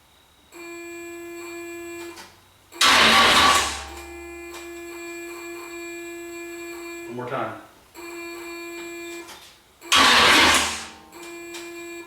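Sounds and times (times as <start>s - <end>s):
electrical hum: 0.0s - 12.0s
starter motor cranking: 2.8s - 4.0s, 9.9s - 10.9s.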